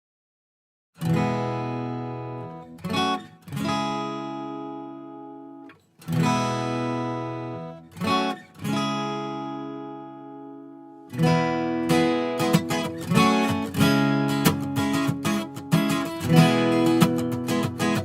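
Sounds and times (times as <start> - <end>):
acoustic guitar strumming chords: 1.0 - 18.0.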